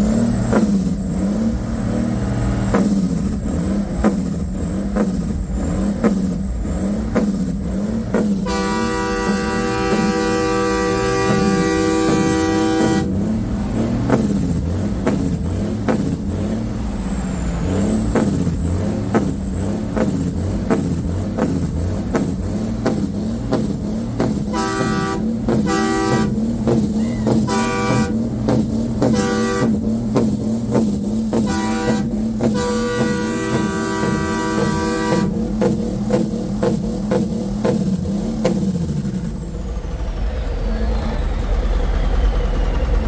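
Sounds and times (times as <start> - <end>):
truck engine rumbling: 0.0 - 43.0
truck air horn blowing: 8.2 - 16.0, 22.9 - 30.2, 31.0 - 35.6.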